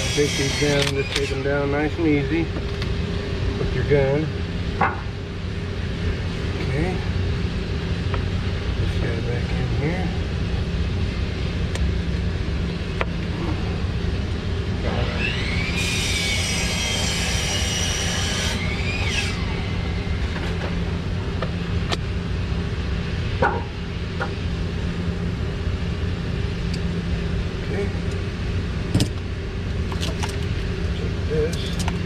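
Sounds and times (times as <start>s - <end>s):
power screw gun whining: 0.0s - 1.6s, 15.0s - 20.1s
steady low rumble: 0.9s - 15.0s, 19.4s - 32.0s.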